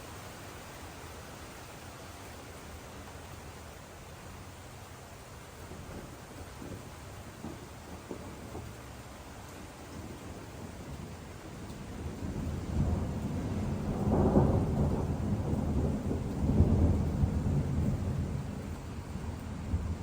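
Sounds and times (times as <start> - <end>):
rain hiss: 0.0 - 20.0
thunder rolling: 10.0 - 20.0.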